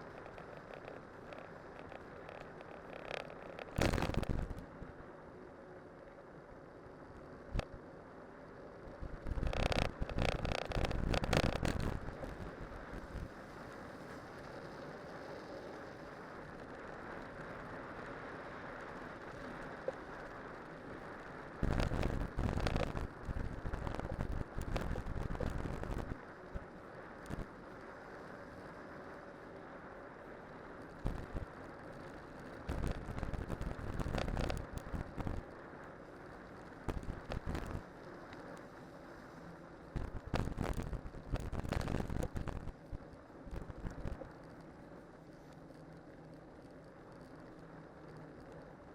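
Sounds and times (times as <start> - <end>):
bike tyres rolling hiss: 5.5 - 48.9.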